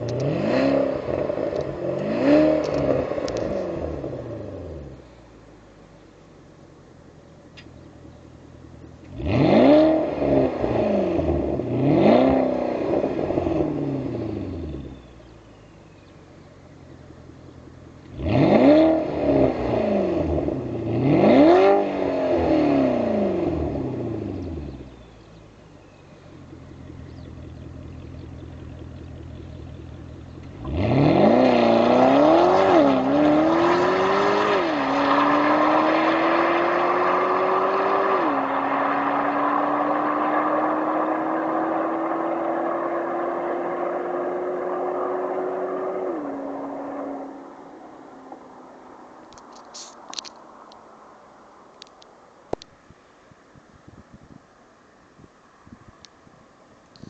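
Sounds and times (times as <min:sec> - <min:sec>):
car accelerating through gears: 0:00.0 - 0:05.0, 0:09.0 - 0:15.1, 0:18.0 - 0:25.1, 0:26.8 - 0:48.4
car engine revving: 0:00.0 - 0:06.5, 0:07.4 - 0:49.4.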